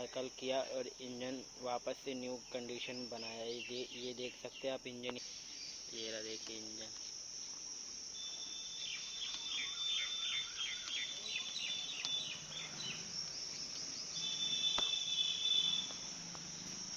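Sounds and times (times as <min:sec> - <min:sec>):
crickets chirring: 0:00.0 - 0:16.9
chirping calls: 0:08.2 - 0:16.9
high whistling tone: 0:14.2 - 0:16.1
sharp light knocks: 0:14.7 - 0:15.0.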